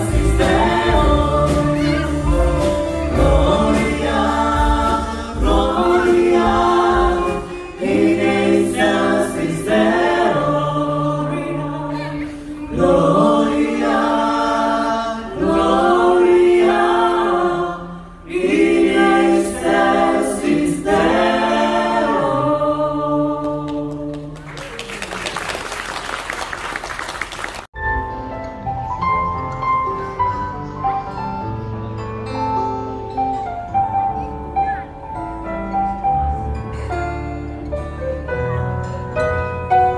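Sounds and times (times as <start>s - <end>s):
soft music: 0.0s - 24.4s, 27.8s - 39.9s
choir singing a carol: 0.0s - 24.5s
applause: 24.1s - 27.7s.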